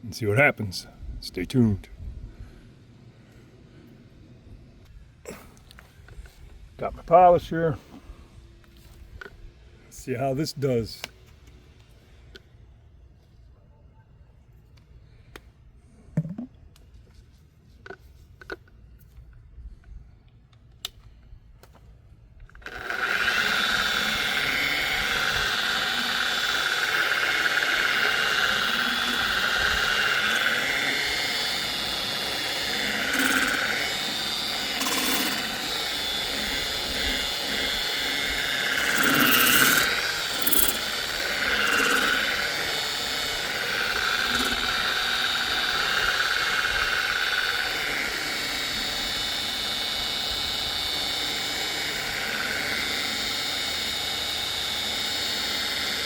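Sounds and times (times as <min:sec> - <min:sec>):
power polisher running: 0:22.6 - 0:56.0.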